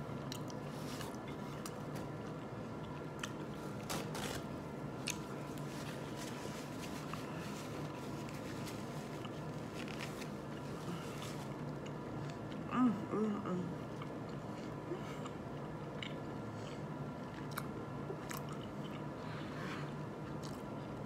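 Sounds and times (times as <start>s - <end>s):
steady low hum: 0.0s - 21.0s
person chewing steak: 13.9s - 19.2s.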